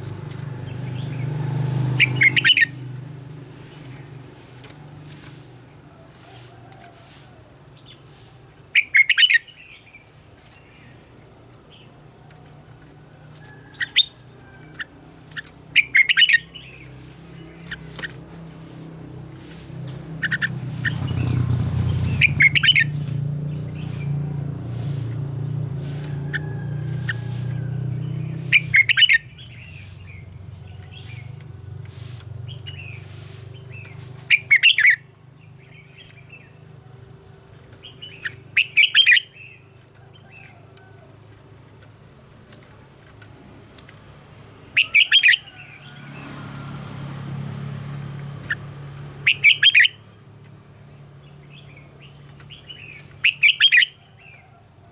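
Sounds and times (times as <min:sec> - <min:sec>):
bulbul singing: 0:00.0 - 0:06.9, 0:08.7 - 0:40.9, 0:42.0 - 0:54.8.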